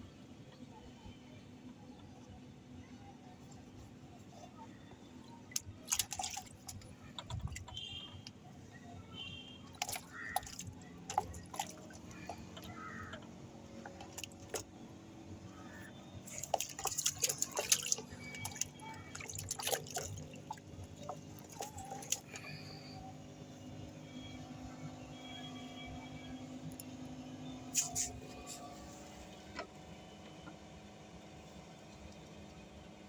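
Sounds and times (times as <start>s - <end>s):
water splashing and dripping: 5.5s - 8.4s, 9.6s - 14.7s, 15.6s - 22.8s, 27.8s - 28.4s.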